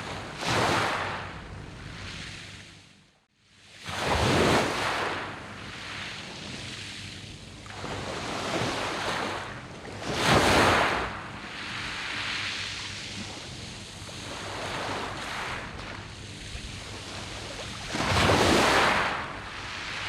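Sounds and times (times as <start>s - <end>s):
waves breaking on pebbles: 14.2s - 20.0s.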